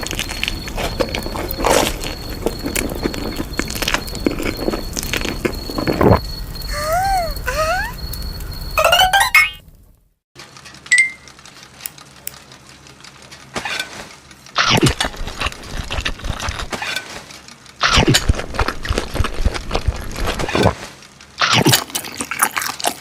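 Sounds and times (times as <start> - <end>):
crisp crunching and chewing: 0.0 - 6.2, 14.6 - 16.8, 17.8 - 23.0.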